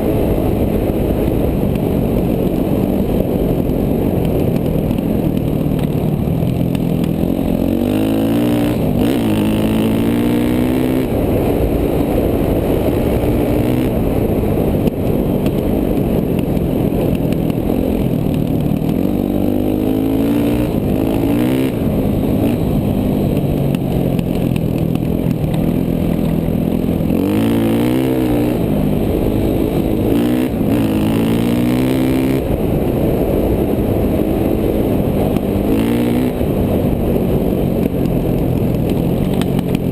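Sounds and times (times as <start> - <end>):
dirt bike engine revving: 6.7 - 11.4, 12.6 - 14.7, 18.7 - 23.4, 25.2 - 32.8, 34.2 - 36.9.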